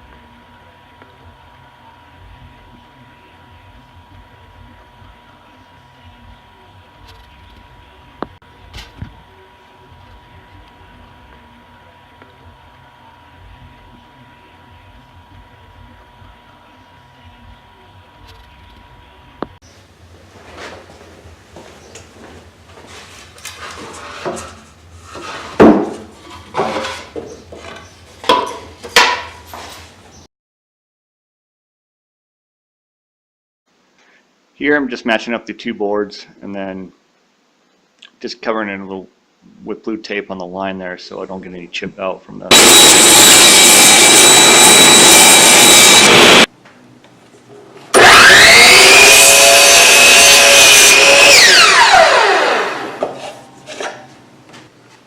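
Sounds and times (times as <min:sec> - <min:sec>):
power saw cutting wood: 0:42.5 - 0:46.5, 0:47.9 - 0:54.0
saw motor whining: 0:42.5 - 0:46.5, 0:47.9 - 0:53.2.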